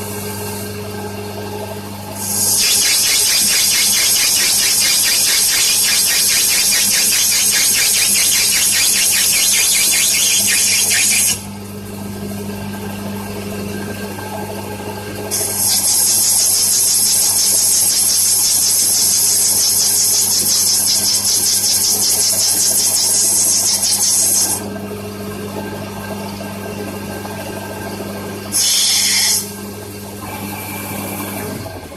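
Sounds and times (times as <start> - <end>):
lathe cutting tool hissing: 2.2 - 11.5, 15.3 - 24.6, 28.5 - 29.5.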